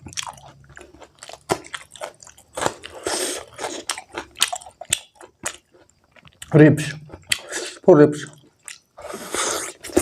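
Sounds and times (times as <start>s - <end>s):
wet chewing and mouth smacks: 0.0s - 10.0s.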